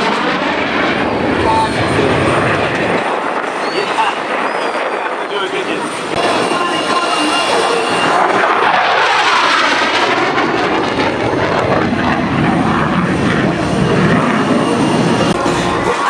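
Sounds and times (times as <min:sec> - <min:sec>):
airplane flying past: 0:00.0 - 0:16.0.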